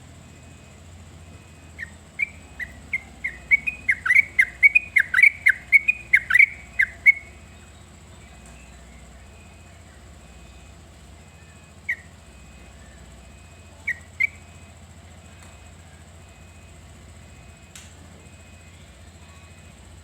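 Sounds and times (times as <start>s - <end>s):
steady low hum: 0.0s - 20.0s
bird sharp call notes: 1.7s - 7.4s.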